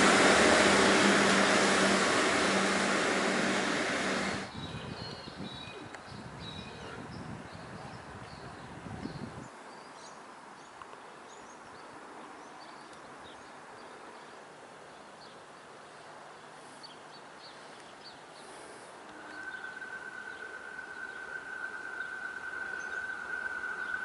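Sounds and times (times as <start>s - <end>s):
rails singing high whine: 0.0s - 4.5s, 18.4s - 24.0s.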